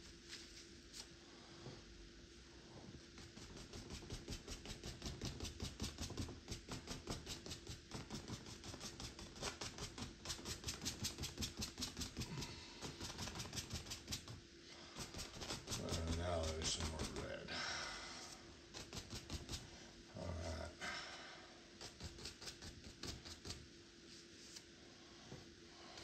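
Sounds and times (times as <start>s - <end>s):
paintbrush scrubbing on canvas: 3.1s - 17.4s, 18.2s - 19.8s, 21.8s - 24.8s.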